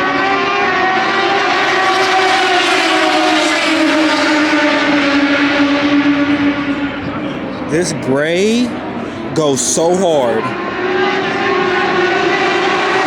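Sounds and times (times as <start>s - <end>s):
motorcycle engine at high revs: 0.0s - 7.2s, 10.6s - 13.0s.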